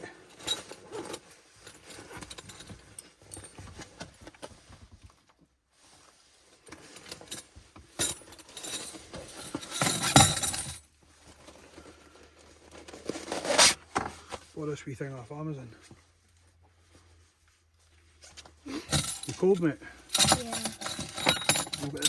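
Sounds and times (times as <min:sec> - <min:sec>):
metal parts clinking and rattling: 0:00.3 - 0:04.2, 0:06.7 - 0:10.8, 0:18.8 - 0:22.0.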